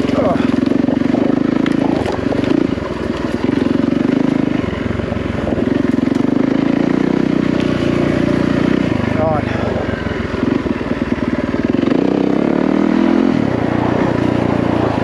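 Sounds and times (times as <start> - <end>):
dirt bike engine under load: 0.0 - 10.8.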